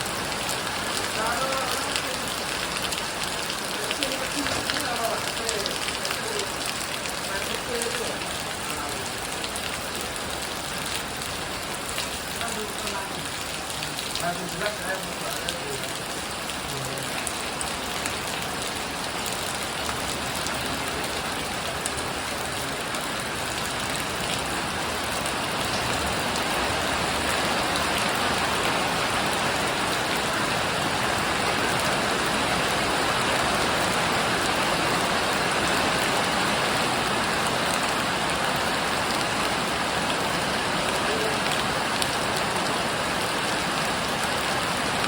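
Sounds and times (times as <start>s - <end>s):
heavy rain pouring: 0.0s - 45.0s
water falling off a roof: 0.0s - 45.0s.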